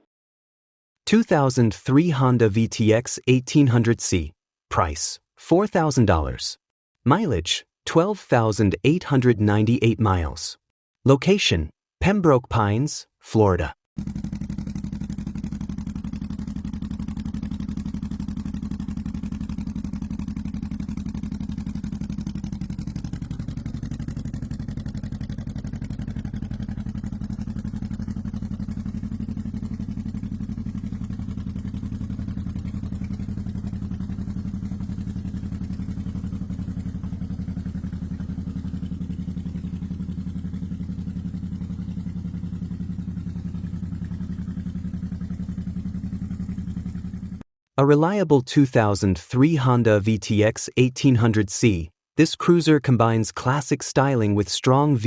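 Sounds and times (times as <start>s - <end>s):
motorcycle engine idling: 14.0s - 47.4s.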